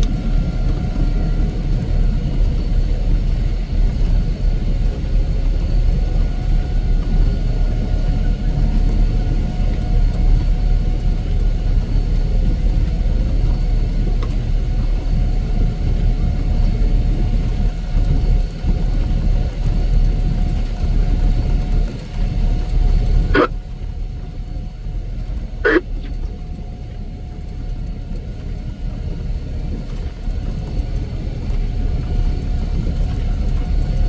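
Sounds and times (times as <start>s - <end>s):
heavy machinery engine rumble: 11.2s - 34.0s.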